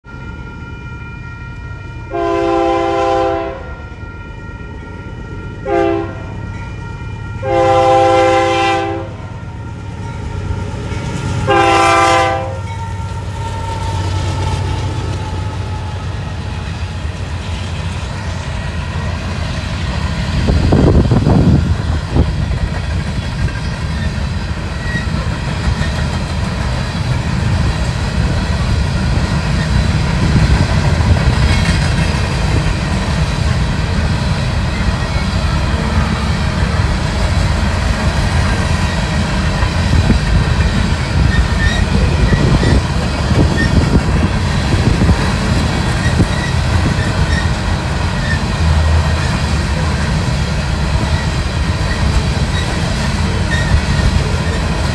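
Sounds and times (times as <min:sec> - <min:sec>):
train rumbling past: 0:00.0 - 0:54.9
locomotive air horn blasts: 0:00.1 - 0:10.0, 0:11.4 - 0:16.5
wheels clicking on rail joints: 0:12.6 - 0:54.9.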